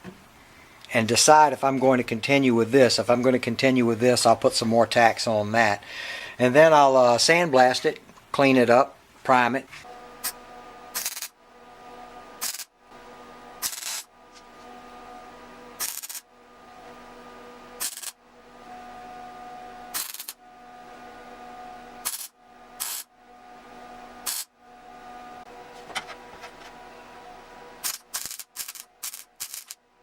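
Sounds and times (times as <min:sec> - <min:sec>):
electrical hum: 0:00.0 - 0:30.0
welding crackling bursts: 0:11.0 - 0:11.3, 0:12.4 - 0:12.7, 0:13.6 - 0:14.1, 0:15.8 - 0:16.2, 0:17.8 - 0:18.2, 0:19.9 - 0:20.4, 0:22.0 - 0:23.1, 0:24.2 - 0:24.5, 0:27.8 - 0:29.8.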